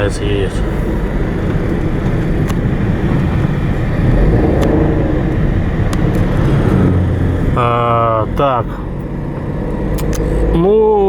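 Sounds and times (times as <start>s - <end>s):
car engine: 0.0s - 11.0s
road rumble: 0.0s - 11.0s
light clicks: 9.9s - 10.4s.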